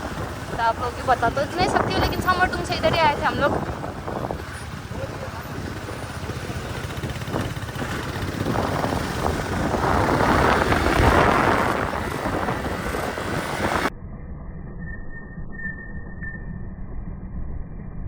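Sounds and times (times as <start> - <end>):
wind rush on microphone: 0.0 - 13.9
motorcycle engine rumble: 0.0 - 14.7.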